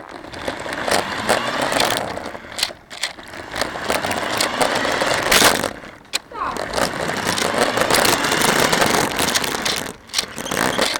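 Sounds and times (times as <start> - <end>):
rc car rattling and clicking: 0.0 - 10.9.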